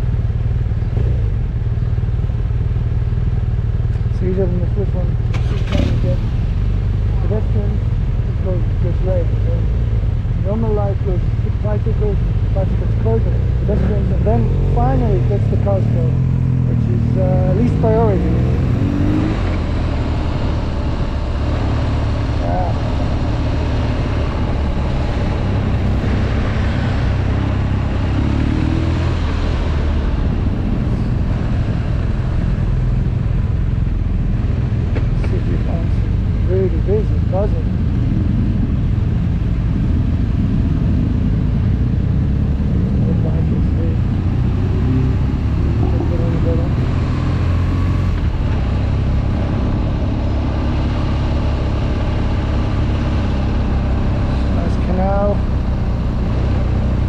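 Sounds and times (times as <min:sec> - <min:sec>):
motorcycle engine idling: 0:00.0 - 0:18.4
motorcycle engine running: 0:00.0 - 0:57.0.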